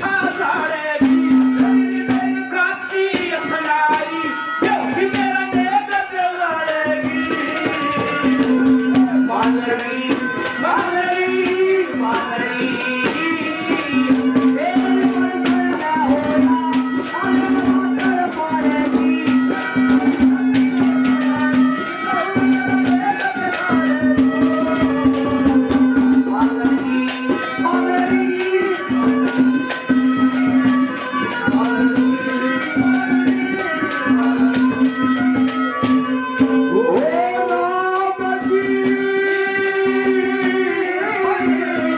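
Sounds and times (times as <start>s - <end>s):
fast hand drum strokes: 0.0s - 41.9s.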